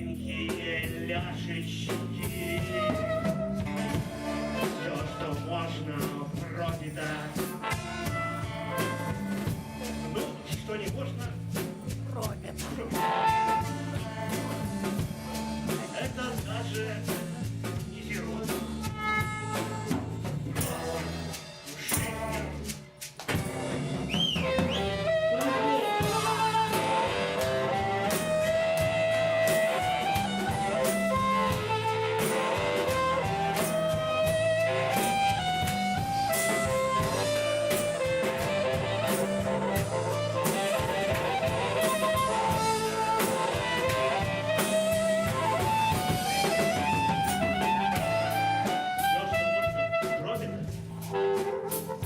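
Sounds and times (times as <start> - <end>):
bass: 0.0 - 52.0
drum kit beat: 0.0 - 52.0
guitar: 0.0 - 52.0
lead melody: 2.2 - 6.0, 7.5 - 16.5, 23.4 - 52.0.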